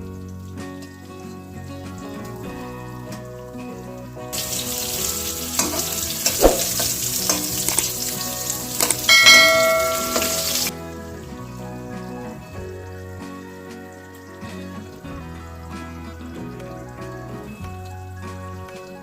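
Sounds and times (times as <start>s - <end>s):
vegetables sizzling in hot oil: 4.3s - 11.8s.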